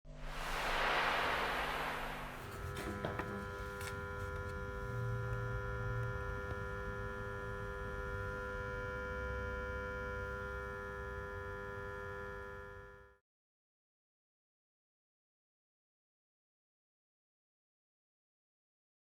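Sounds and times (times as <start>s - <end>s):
electrical switch humming: 2.3s - 13.0s.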